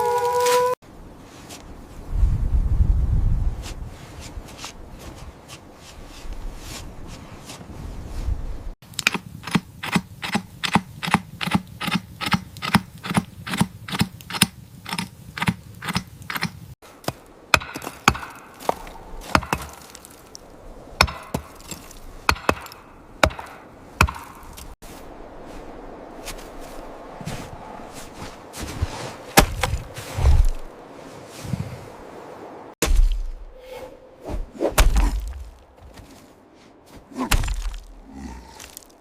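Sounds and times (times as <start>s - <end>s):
rapid sharp knocks: 22.3s - 24.4s.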